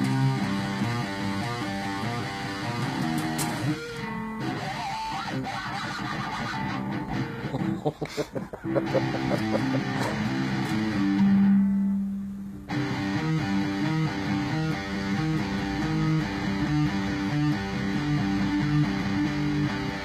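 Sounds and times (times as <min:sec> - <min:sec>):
guitar playing a riff: 0:00.0 - 0:20.0.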